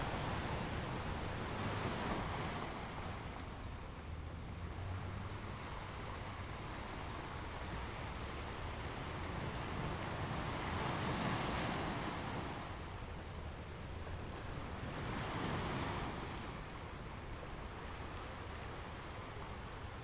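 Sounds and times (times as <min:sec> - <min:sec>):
ocean waves washing: 0:00.0 - 0:13.0.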